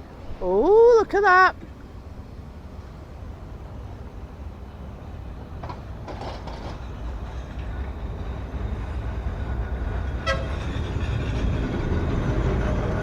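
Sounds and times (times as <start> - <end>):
excavator deep rumble: 4.6 - 13.0.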